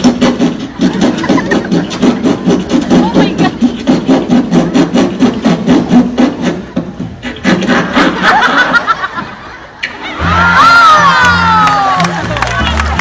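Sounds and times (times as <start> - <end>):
rhythmic laughter: 0.0 - 6.3, 7.2 - 10.3.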